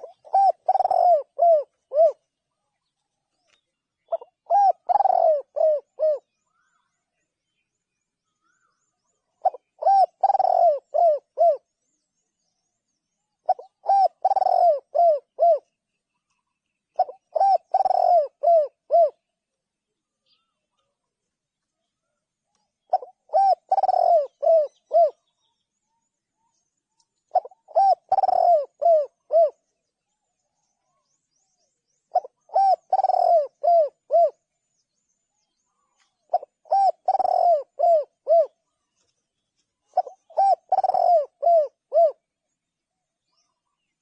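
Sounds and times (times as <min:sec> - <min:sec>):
dove cooing: 0:00.0 - 0:02.6, 0:04.1 - 0:06.6, 0:09.4 - 0:11.7, 0:13.4 - 0:15.7, 0:17.0 - 0:19.2, 0:22.9 - 0:25.3, 0:27.3 - 0:29.7, 0:32.1 - 0:34.5, 0:35.8 - 0:39.0, 0:39.9 - 0:42.3.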